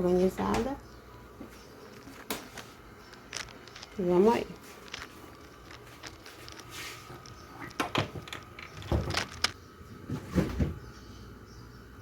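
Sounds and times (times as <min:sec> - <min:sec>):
plastic drawers knocking and scraping: 0:07.7 - 0:10.8.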